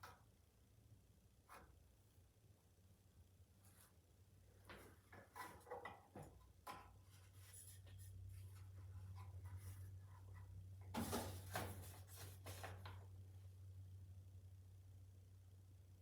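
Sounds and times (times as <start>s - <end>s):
handling rustles and knocks: 3.6s - 13.2s
low steady hum: 6.2s - 16.0s.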